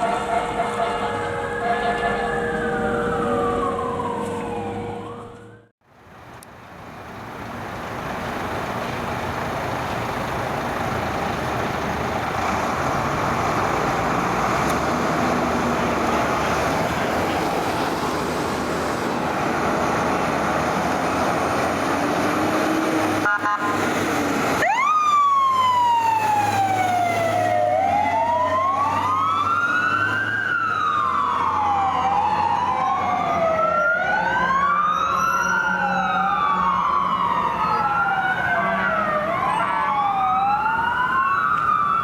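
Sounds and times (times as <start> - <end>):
fire truck siren winding down: 0.0 - 5.8, 9.2 - 42.0
rough siren: 0.0 - 5.8, 12.3 - 42.0
heavy truck noise: 0.0 - 42.0.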